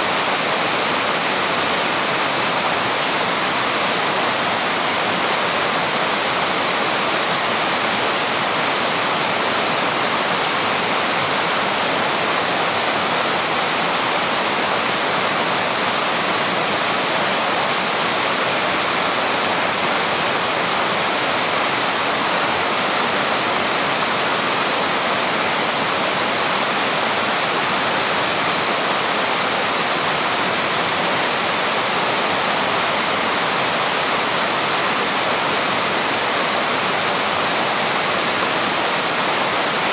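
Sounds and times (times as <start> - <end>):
waterfall pouring over rocks: 0.0 - 39.9.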